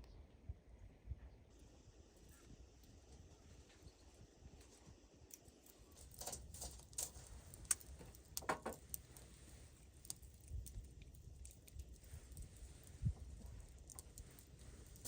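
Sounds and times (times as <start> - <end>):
light clicks and knocks: 6.1 - 9.3.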